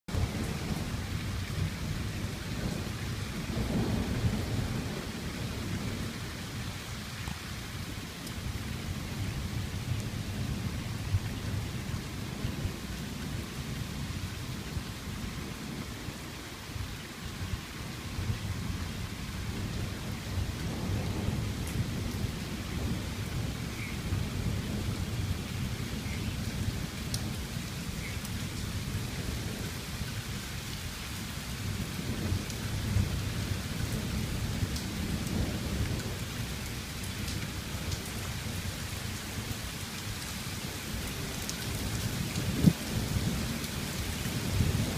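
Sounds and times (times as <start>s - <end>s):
rumble of thunder: 0.1s - 39.6s, 40.8s - 44.9s
steady rain falling: 0.1s - 44.9s.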